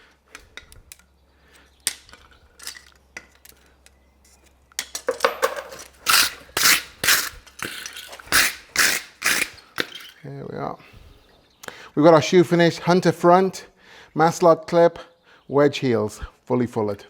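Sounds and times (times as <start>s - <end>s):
metallic clinks of horseshoe: 4.9s - 8.4s
rasp strokes on horseshoe: 5.2s - 10.2s.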